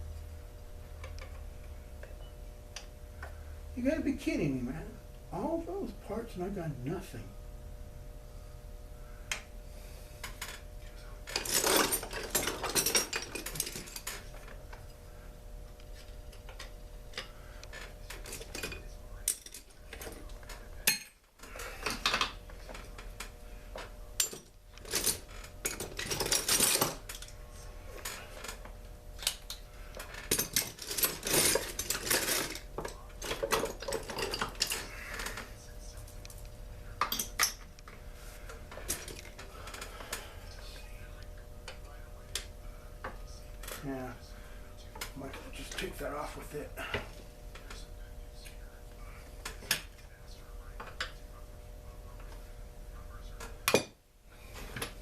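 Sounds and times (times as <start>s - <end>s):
faint steady hum: 0.0s - 55.0s
metal parts clinking and scraping: 11.3s - 14.5s, 24.2s - 27.3s, 29.2s - 35.4s.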